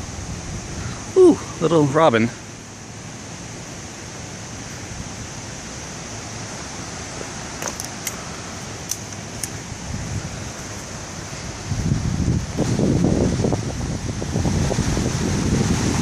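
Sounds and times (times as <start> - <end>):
wind noise on microphone: 0.0 - 1.6, 4.8 - 16.0.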